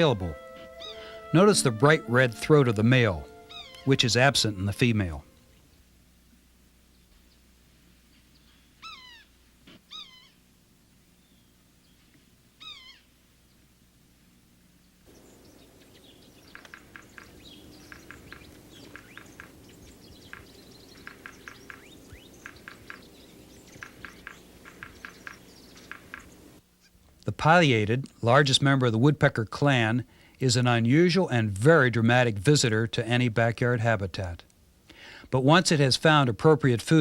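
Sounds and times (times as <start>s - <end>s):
sapsucker mewing call: 0.0s - 5.6s, 8.5s - 10.4s, 12.6s - 13.1s, 15.1s - 27.0s
rapid high bird notes: 0.0s - 5.8s, 15.1s - 26.9s.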